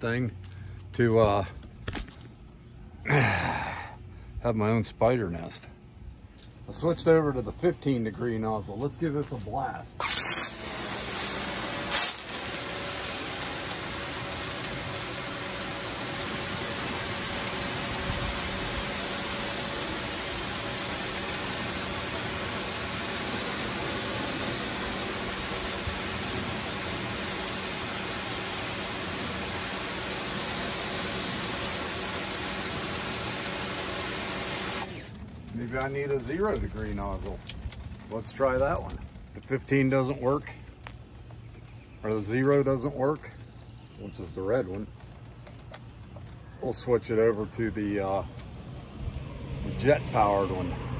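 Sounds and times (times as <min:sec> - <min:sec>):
pressure washer water jet hissing: 0:10.0 - 0:35.2
pump humming: 0:10.0 - 0:37.8.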